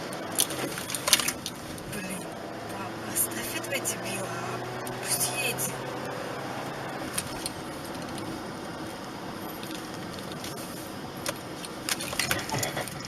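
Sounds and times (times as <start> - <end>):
car cabin road and engine noise: 0.0 - 13.0.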